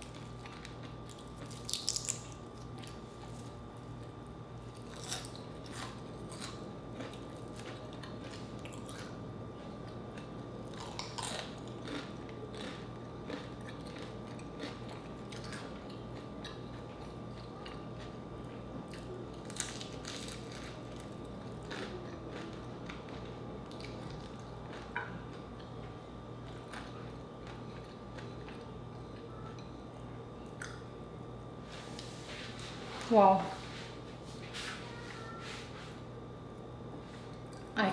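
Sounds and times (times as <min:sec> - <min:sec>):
crisp crunches: 0:00.0 - 0:03.5
faint steady hum: 0:00.0 - 0:37.9.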